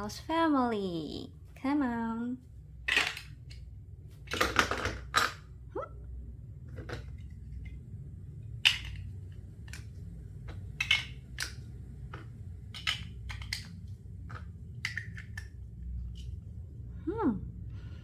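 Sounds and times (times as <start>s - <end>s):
plastic bricks clicking together: 2.9s - 3.6s, 8.6s - 9.9s, 10.5s - 15.6s.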